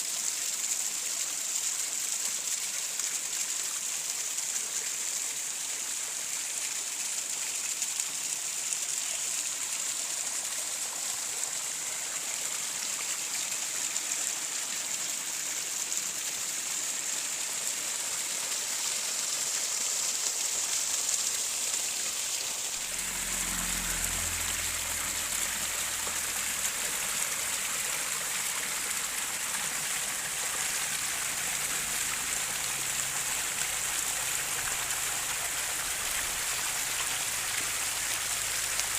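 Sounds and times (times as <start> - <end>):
running water hissing: 11.2 - 38.9
rumbling water: 19.5 - 38.9.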